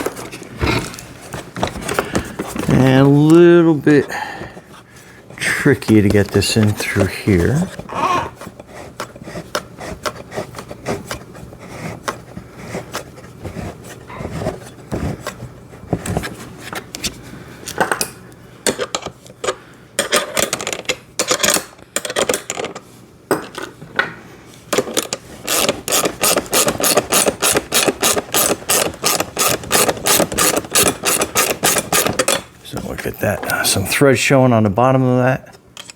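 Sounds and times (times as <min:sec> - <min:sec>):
bolt scraping and rubbing: 0:24.8 - 0:32.5.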